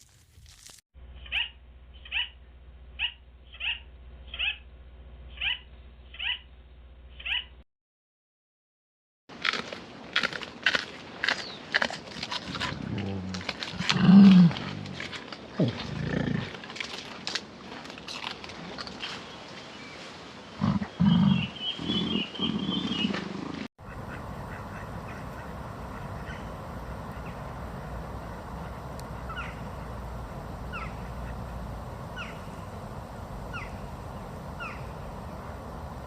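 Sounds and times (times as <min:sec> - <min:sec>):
high warbling animal call: 0:03.0 - 0:04.6, 0:05.3 - 0:06.4, 0:23.9 - 0:32.7, 0:33.5 - 0:34.0, 0:34.6 - 0:35.0
loud low animal calls: 0:20.6 - 0:36.0
background hiss: 0:23.9 - 0:36.0.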